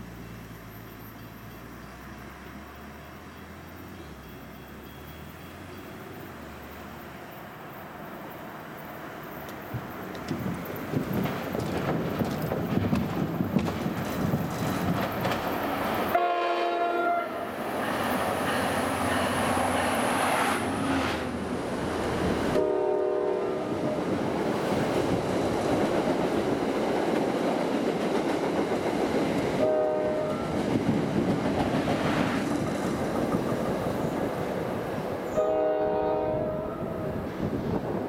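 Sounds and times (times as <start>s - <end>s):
train rumbling past: 0.0s - 38.0s
wheels clattering on rails: 9.3s - 16.1s, 24.1s - 35.3s
train horn blasts: 16.1s - 17.5s, 22.5s - 24.1s, 29.6s - 30.5s, 35.3s - 37.2s.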